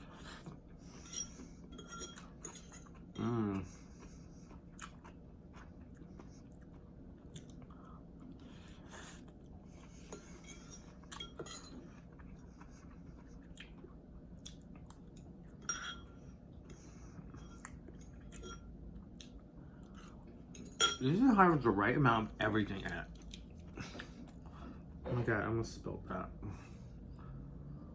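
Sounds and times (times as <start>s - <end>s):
quiet chewing of noodles: 0.0s - 20.5s, 22.8s - 25.0s
utensils and dishes clinking: 0.9s - 3.0s, 10.1s - 12.0s, 15.6s - 18.7s, 20.5s - 21.4s.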